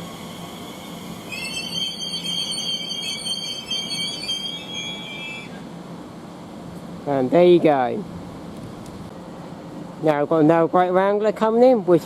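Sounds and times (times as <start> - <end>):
train wheels squealing on rails: 0.0 - 5.7.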